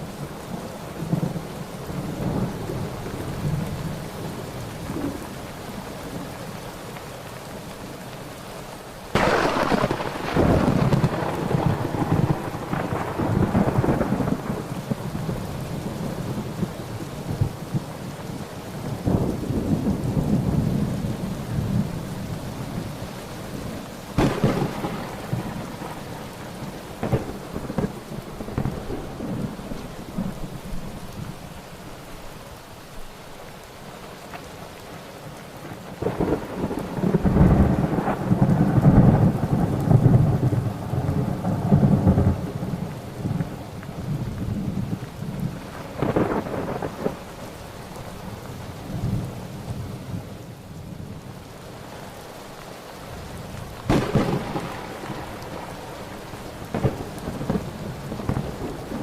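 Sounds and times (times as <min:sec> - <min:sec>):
steady rain: 0:00.0 - 0:59.0
sharp thunder cracks: 0:09.1 - 0:15.1, 0:24.2 - 0:26.2, 0:27.0 - 0:29.6, 0:53.9 - 0:55.8, 0:56.7 - 0:59.0
rolling thunder: 0:09.1 - 0:17.9, 0:24.2 - 0:30.9, 0:36.0 - 0:47.3, 0:53.8 - 0:59.0.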